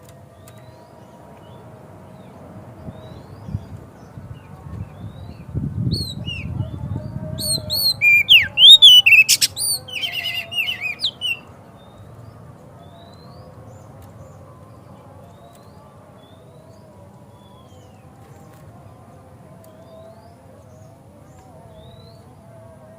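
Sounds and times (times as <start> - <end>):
bird singing: 0.3 - 22.4
distant bird chirps: 7.4 - 11.4.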